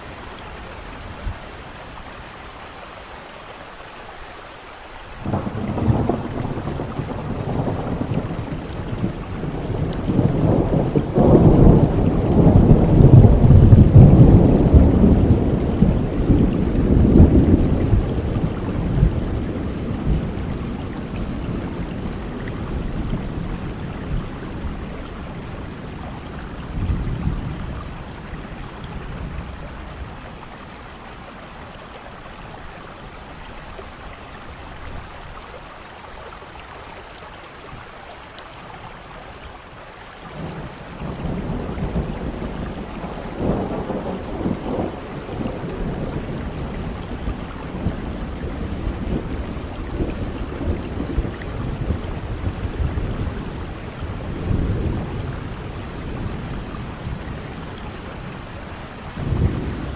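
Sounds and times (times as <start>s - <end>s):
steady rain: 0.0s - 59.9s
rolling thunder: 5.2s - 30.5s, 40.4s - 59.9s.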